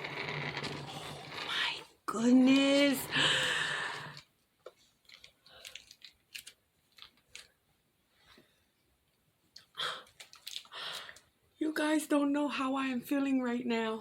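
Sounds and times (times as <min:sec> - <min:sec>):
breathy exhales: 0:03.1 - 0:04.2.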